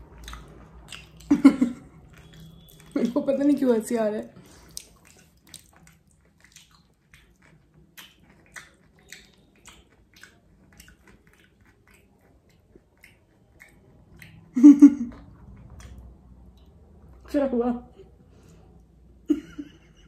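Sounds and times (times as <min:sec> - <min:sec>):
crunchy chewing of sandwich: 0:00.0 - 0:03.0, 0:04.4 - 0:14.4.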